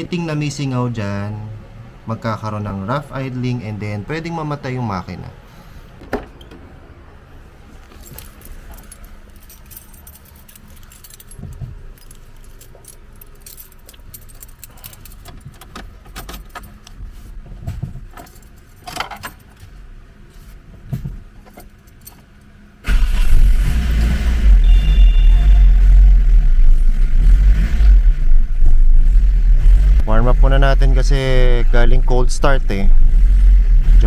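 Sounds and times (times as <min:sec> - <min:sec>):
light metallic clicks and jangling: 0:07.8 - 0:17.0, 0:21.4 - 0:22.6
engine idling: 0:22.8 - 0:34.0.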